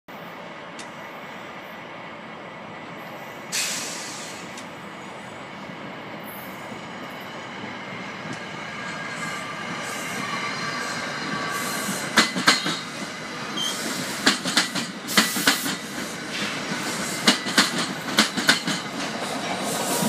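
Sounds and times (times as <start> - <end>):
passenger train rolling: 0.1 - 20.0
sharp hiss of released air: 3.4 - 4.6, 19.6 - 20.0
wheel squeal: 13.6 - 13.9.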